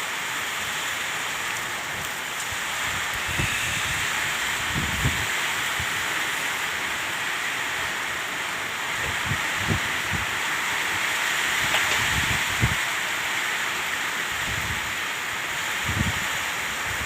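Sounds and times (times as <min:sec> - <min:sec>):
rain and floodwater rushing: 0:00.0 - 0:17.0
wind buffeting microphone: 0:02.0 - 0:06.1, 0:09.0 - 0:10.3, 0:11.6 - 0:12.8, 0:14.4 - 0:14.9, 0:15.8 - 0:17.0.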